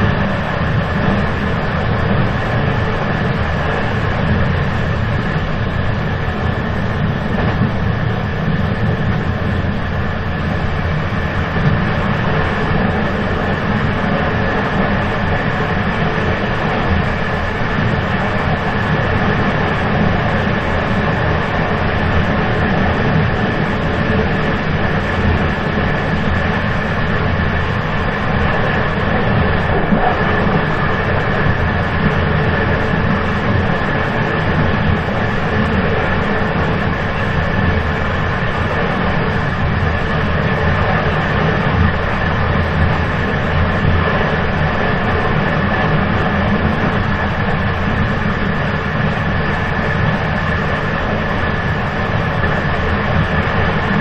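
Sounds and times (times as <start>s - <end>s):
moving train rumble: 0.0s - 54.0s
thin steady whine: 0.0s - 54.0s.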